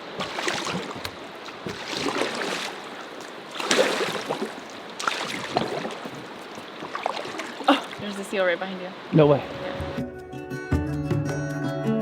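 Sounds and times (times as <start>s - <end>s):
paddle strokes splashing water: 0.0s - 8.3s.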